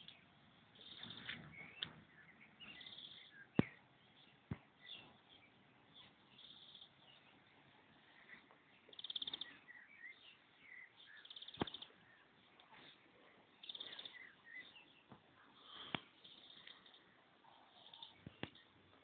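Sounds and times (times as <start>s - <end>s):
songbird trills and chirps: 0.0s - 19.0s.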